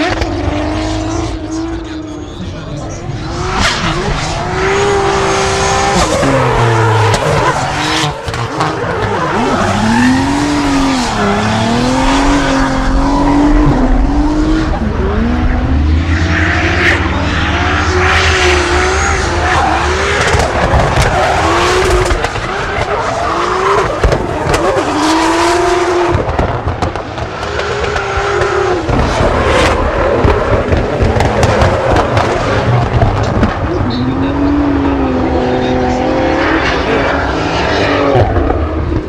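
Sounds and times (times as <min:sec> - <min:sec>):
car engine revving: 0:00.0 - 0:39.0
tyres skidding and squealing: 0:01.0 - 0:26.0.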